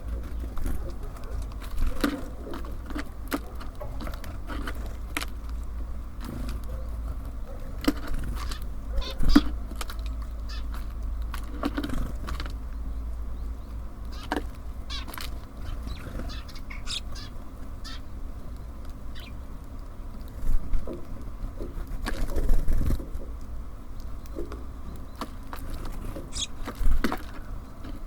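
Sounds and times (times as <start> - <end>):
birds tapping: 0.0 - 28.0
steady low rumble: 0.0 - 28.0
short bird calls: 8.4 - 9.6, 14.1 - 18.1, 19.1 - 19.4, 26.2 - 26.6.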